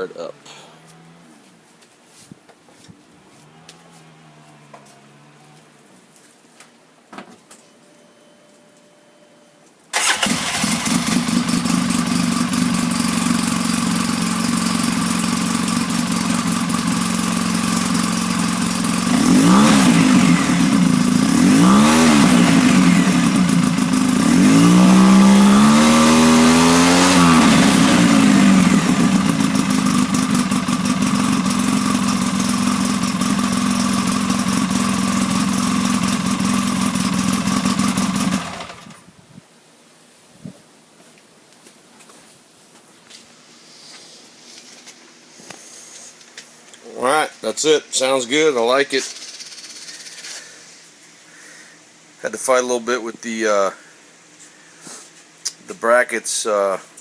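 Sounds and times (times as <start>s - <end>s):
off-road vehicle engine idling and revving: 10.2s - 39.0s.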